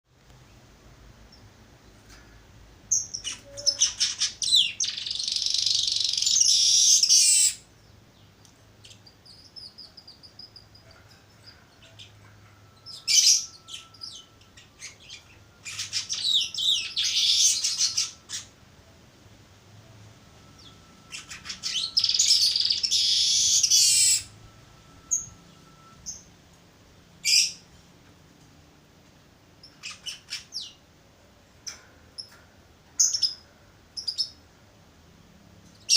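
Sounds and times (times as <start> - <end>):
bird rapid ticking song: 2.9 - 12.2.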